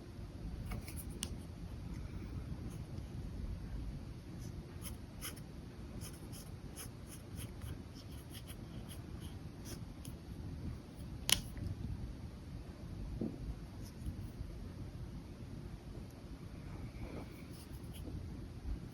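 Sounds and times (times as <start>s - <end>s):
low room hum: 0.0s - 18.9s
pen scratching on paper: 4.4s - 5.4s, 6.0s - 9.8s.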